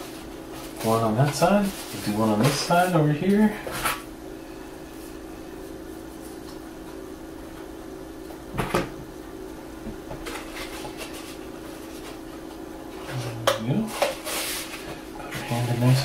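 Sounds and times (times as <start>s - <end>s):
steady low hum: 0.0s - 16.0s
soft paper rustles: 0.6s - 3.0s.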